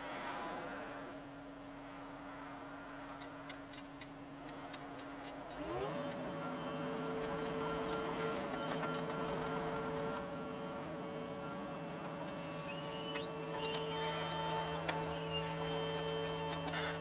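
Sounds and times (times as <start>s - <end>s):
high hydraulic whines: 0.0s - 1.8s
excavator engine and hydraulic drone: 0.0s - 2.3s, 5.6s - 17.0s.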